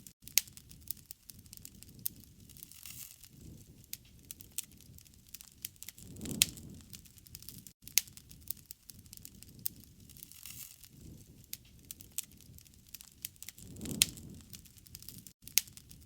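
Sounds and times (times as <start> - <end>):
campfire crackling and popping: 0.2 - 16.0
low rushing of flame: 0.7 - 16.0.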